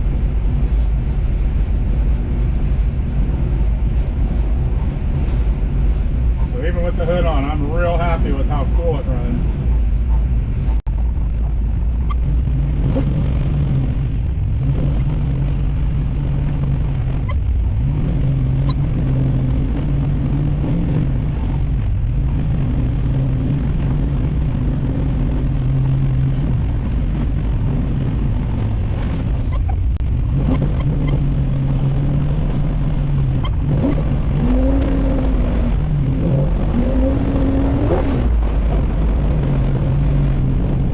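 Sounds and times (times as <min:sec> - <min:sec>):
car engine revving: 0:00.0 - 0:40.9
low rumble: 0:00.0 - 0:40.9.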